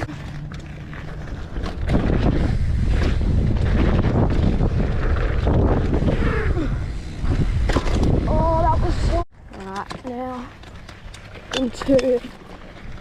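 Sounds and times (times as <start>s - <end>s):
wind rushing over microphone: 1.7s - 9.2s.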